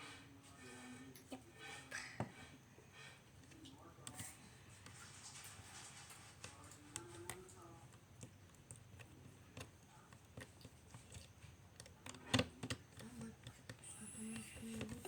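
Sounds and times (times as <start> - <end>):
stirrer tapping in slime: 3.3 - 15.0.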